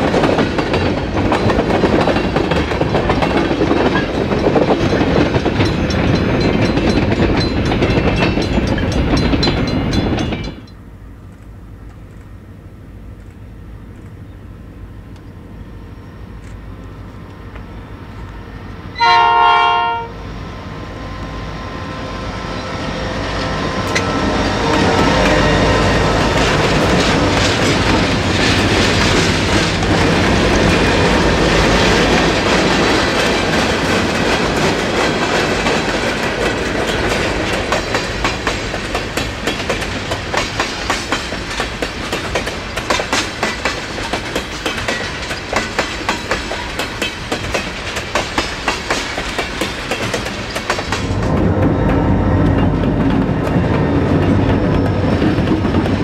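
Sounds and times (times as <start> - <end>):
wheels clicking over rail joints: 0.0 - 12.4, 24.8 - 51.5
locomotive horn chord blast: 19.0 - 20.3.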